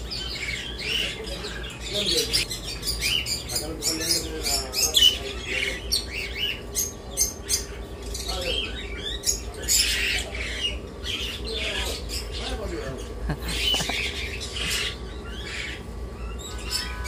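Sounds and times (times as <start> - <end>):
caged birds chirping and squawking: 0.0 - 17.0.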